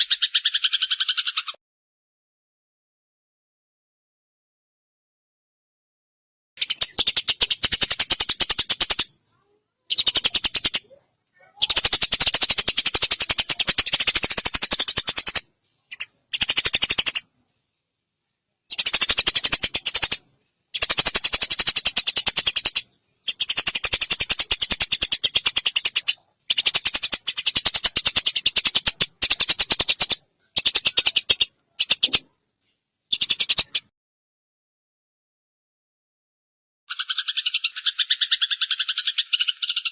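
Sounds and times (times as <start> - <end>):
sparrows chattering: 0.0 - 1.6, 6.6 - 17.3, 18.7 - 32.3, 33.1 - 33.9, 36.9 - 39.9.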